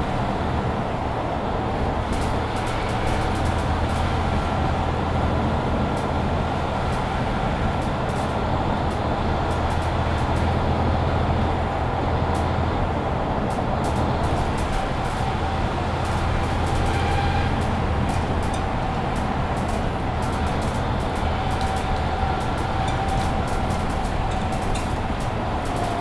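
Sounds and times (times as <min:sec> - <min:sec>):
bus engine running: 0:00.0 - 0:26.0
road noise: 0:00.0 - 0:26.0
faint clicks and rattles: 0:07.7 - 0:10.7, 0:13.5 - 0:26.0.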